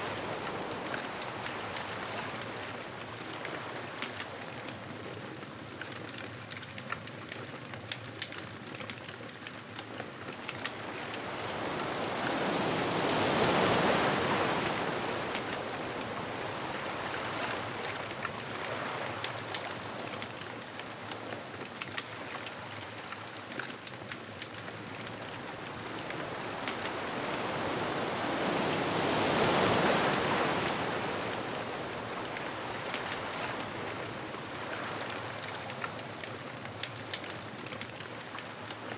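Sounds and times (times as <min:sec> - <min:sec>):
hiss of surf: 0:00.0 - 0:02.8, 0:11.0 - 0:20.0, 0:25.4 - 0:36.2
ocean waves breaking: 0:00.0 - 0:02.8, 0:10.7 - 0:20.1, 0:25.0 - 0:36.4.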